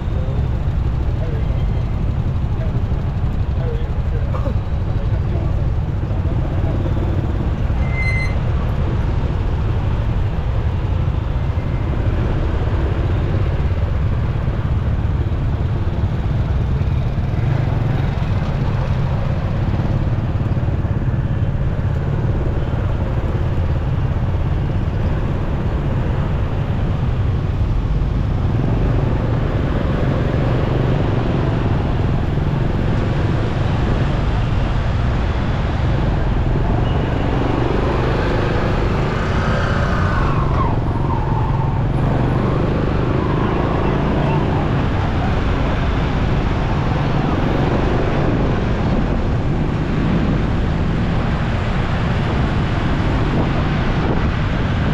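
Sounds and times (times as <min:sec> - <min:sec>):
surrounding traffic: 0:00.0 - 0:54.9
wind and motorcycle engine rumble: 0:00.0 - 0:54.9
high beep: 0:07.8 - 0:08.4.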